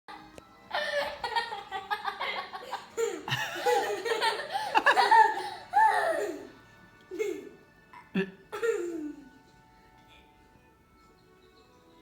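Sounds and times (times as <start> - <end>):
people laughing: 0.7 - 6.4.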